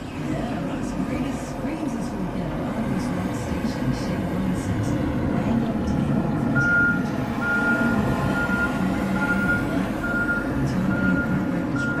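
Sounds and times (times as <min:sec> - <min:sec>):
tractor engine running: 0:00.0 - 0:12.0
backup alarm beeping: 0:06.5 - 0:12.0.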